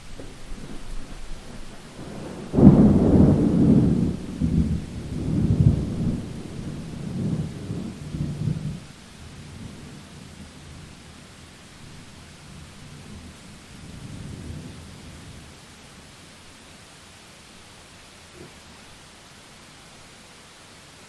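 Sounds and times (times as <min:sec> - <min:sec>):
thunderclap rolling: 0:00.0 - 0:08.9
rain hiss: 0:00.0 - 0:21.0.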